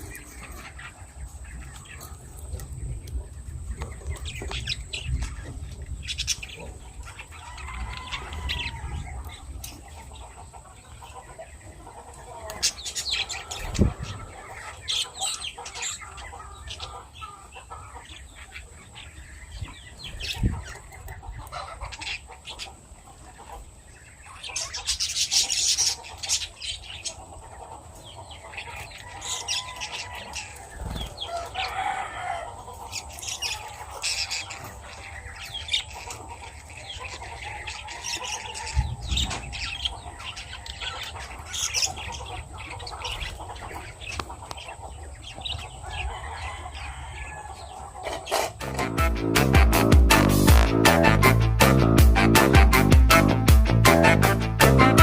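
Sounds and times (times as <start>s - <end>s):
lovebirds chirping and squawking: 0.0s - 55.0s
wings flapping: 30.6s - 31.3s.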